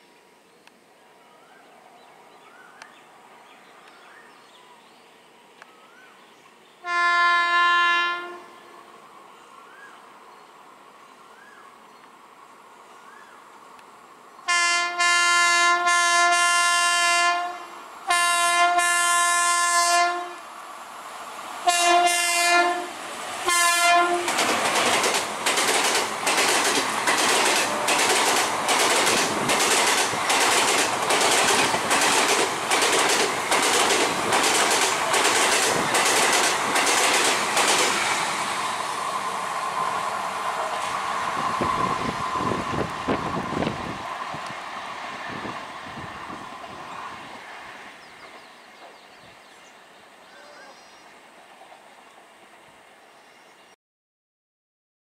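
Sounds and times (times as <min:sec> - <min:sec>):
locomotive horn blasts: 0:06.8 - 0:08.7, 0:14.5 - 0:20.5, 0:21.7 - 0:24.4
train wheels clickety-clack: 0:23.5 - 0:38.3.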